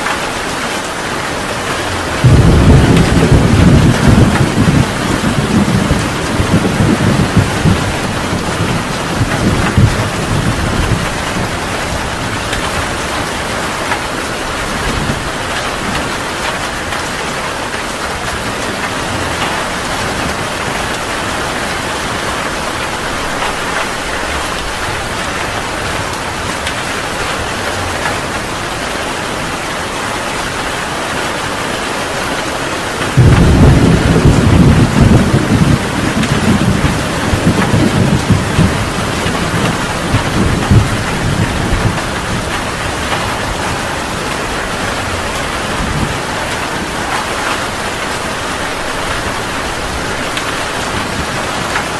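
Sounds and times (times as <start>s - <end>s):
heavy rain: 0.0s - 51.9s
rolling thunder: 1.7s - 17.1s, 33.0s - 51.9s
loud thunderclap: 1.9s - 17.0s, 33.1s - 51.9s.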